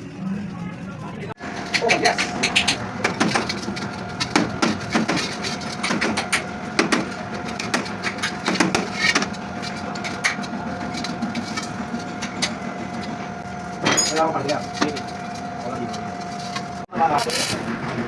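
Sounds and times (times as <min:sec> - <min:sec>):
tools clicking on metal: 0:01.7 - 0:12.6.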